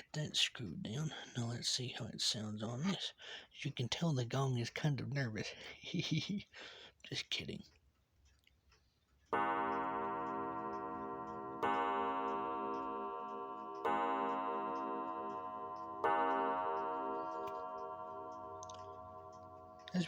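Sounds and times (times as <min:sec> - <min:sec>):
gong strikes ringing: 0:09.4 - 0:20.0.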